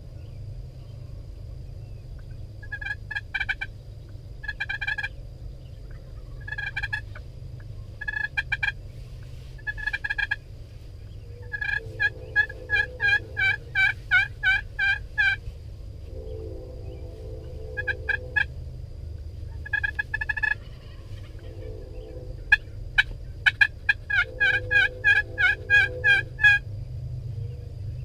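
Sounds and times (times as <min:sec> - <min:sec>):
turkeys gobbling: 0:02.2 - 0:03.7, 0:04.4 - 0:05.2, 0:05.8 - 0:10.4, 0:11.0 - 0:15.5, 0:16.4 - 0:18.5, 0:19.5 - 0:26.6.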